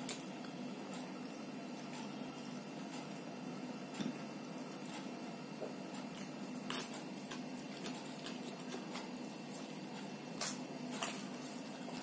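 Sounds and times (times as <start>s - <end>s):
faint steady hum: 0.0s - 12.0s
person chewing: 5.9s - 12.0s.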